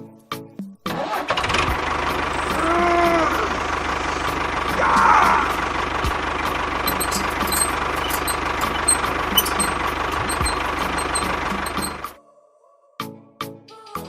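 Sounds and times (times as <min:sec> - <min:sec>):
motor running steadily: 0:05.4 - 0:12.1.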